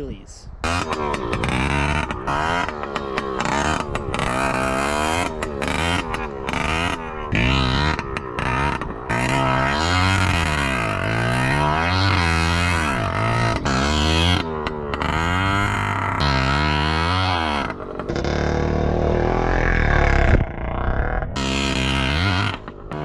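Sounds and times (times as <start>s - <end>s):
two-stroke engine revving: 0.6s - 23.0s.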